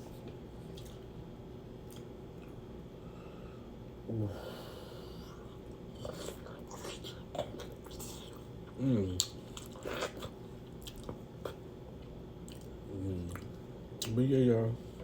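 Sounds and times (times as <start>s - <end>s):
person chewing: 0.7s - 1.1s, 1.8s - 2.6s, 5.2s - 8.5s, 9.1s - 11.6s, 12.4s - 14.2s.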